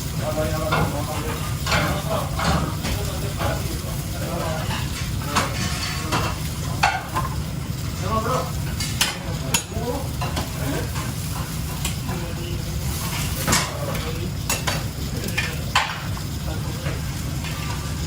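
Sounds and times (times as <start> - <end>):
food sizzling in a pan: 0.0 - 18.0
metal utensil clinking on pan: 4.6 - 7.4, 8.7 - 12.2, 13.3 - 16.1.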